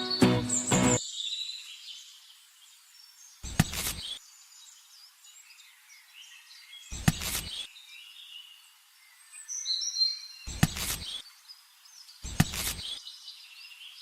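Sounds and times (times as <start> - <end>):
birds chirping: 0.0 - 1.0.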